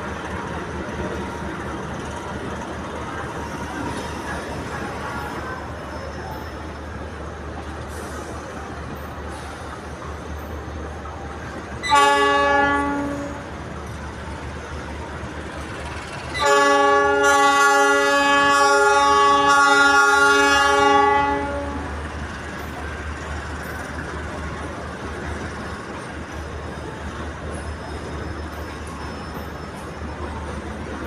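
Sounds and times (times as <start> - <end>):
low rumble of train: 0.0 - 31.0
locomotive air horn blasts: 11.8 - 13.5, 16.4 - 21.9.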